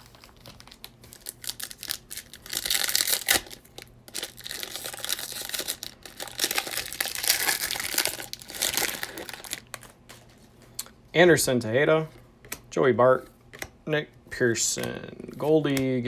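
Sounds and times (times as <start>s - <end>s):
plastic wrapping tearing and crinkling: 0.0s - 10.3s.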